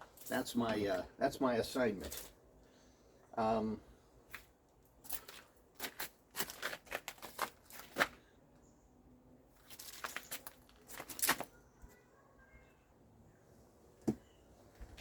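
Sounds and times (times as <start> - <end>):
crinkling and tearing: 5.1 - 8.2.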